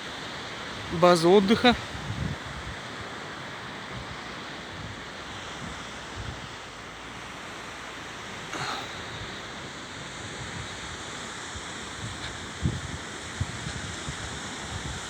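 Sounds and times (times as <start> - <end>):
waves washing on the shore: 0.0 - 15.0
wind buffeting the microphone: 0.8 - 6.7, 10.0 - 15.0.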